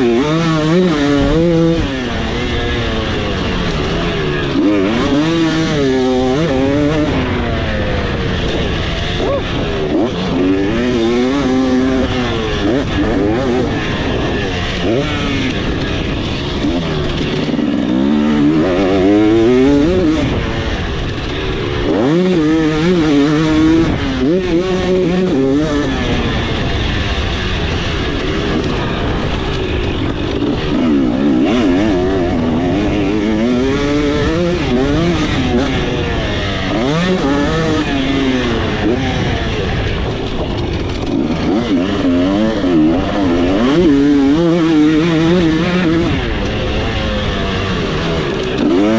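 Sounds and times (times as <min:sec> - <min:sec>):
two-stroke dirt bike revving: 0:00.0 - 0:48.9.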